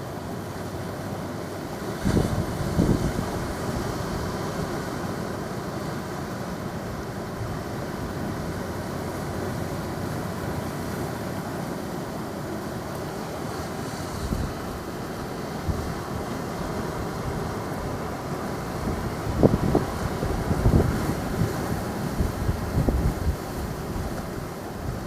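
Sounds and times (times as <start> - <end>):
ocean surf rushing: 0.0 - 25.0
wind noise on microphone: 2.0 - 5.0, 14.0 - 25.0.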